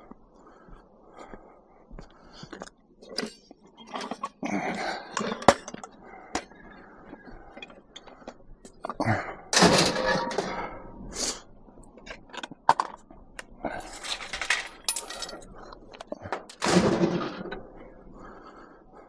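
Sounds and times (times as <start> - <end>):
scrap clattering and scraping: 9.6 - 11.4, 13.7 - 17.7.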